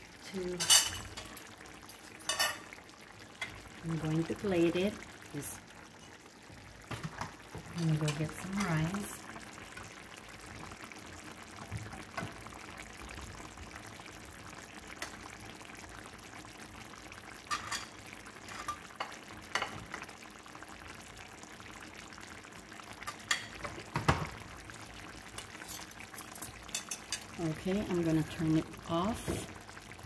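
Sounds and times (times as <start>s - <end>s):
sauce simmering and bubbling: 0.0s - 30.0s
dishes and utensils clinking: 0.6s - 1.3s, 2.0s - 2.7s.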